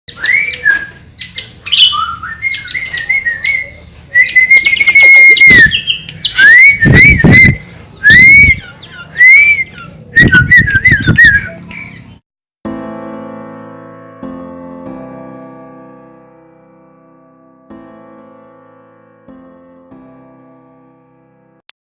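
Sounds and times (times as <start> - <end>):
bird singing whistled phrases: 0.1 - 12.2.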